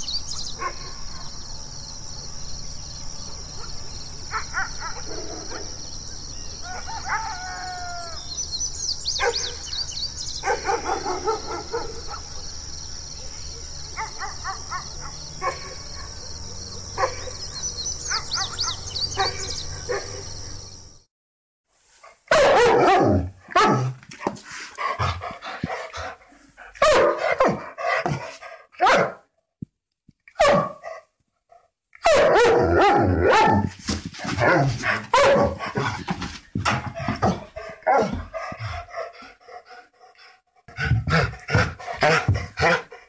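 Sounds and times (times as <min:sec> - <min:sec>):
dogs barking: 0:00.6 - 0:01.0, 0:03.6 - 0:05.8, 0:09.2 - 0:09.8, 0:10.4 - 0:12.5, 0:13.9 - 0:16.3, 0:16.9 - 0:20.3, 0:22.3 - 0:29.2, 0:30.3 - 0:31.1, 0:32.0 - 0:39.9, 0:40.7 - 0:43.0.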